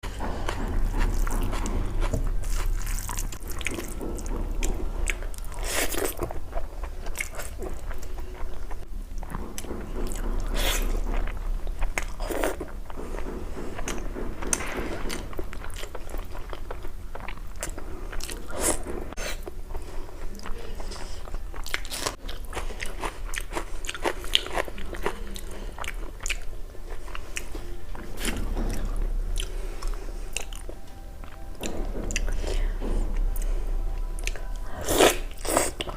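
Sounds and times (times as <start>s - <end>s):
crunchy food chewing: 0.1s - 13.0s, 20.2s - 27.5s.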